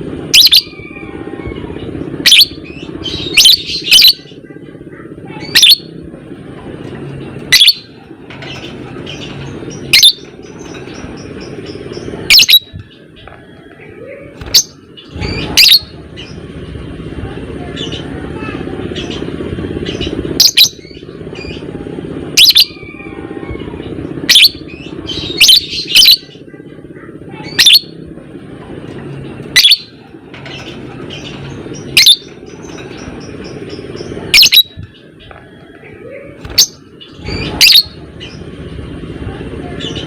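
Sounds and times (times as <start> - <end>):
lovebird high-pitched calls: 0.3 - 4.4, 5.3 - 6.0, 7.5 - 16.4, 18.9 - 21.7, 22.3 - 26.5, 27.4 - 28.0, 29.5 - 38.4.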